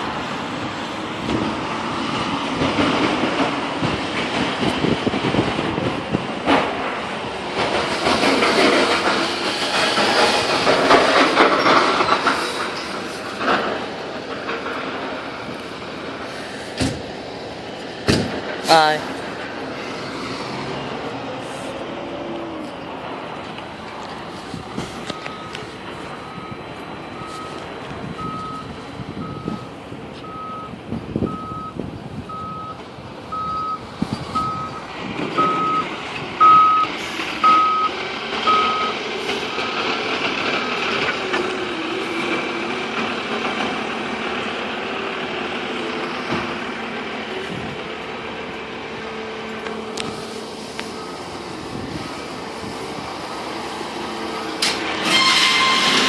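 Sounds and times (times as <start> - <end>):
truck engine running: 0.0 - 56.0
loud knocks: 18.0 - 18.5
truck reversing alarm beeping: 23.1 - 42.6, 49.0 - 56.0.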